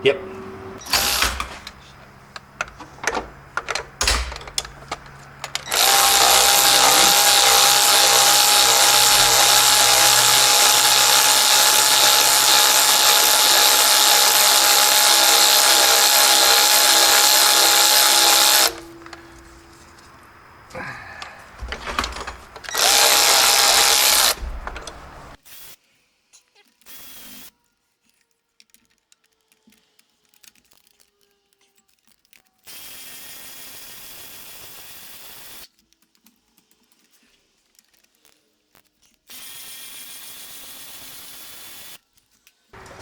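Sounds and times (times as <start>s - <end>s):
power drill whining: 0.8s - 1.9s, 2.6s - 19.6s, 21.6s - 25.4s, 39.3s - 42.0s
power drill clicks: 0.8s - 19.5s, 21.6s - 25.4s.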